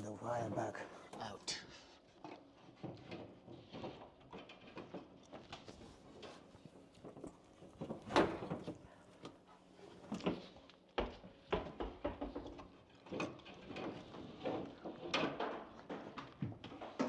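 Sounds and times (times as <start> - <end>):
cable scraping through drywall: 2.3 - 8.9, 12.2 - 17.0.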